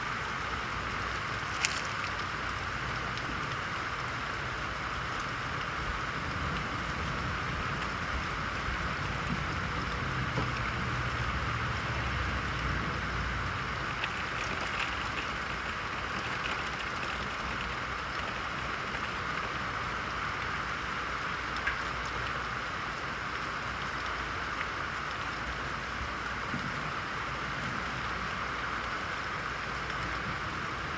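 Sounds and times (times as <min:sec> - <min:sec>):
heavy rain falling: 0:00.0 - 0:30.9
sharp drips: 0:00.4 - 0:27.5
low thunder rumble: 0:06.0 - 0:13.9.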